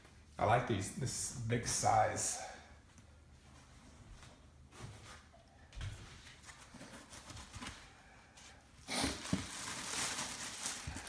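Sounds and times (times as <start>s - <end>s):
packaging rustling: 8.9s - 11.0s
packing material crinkling and tearing: 8.9s - 11.0s.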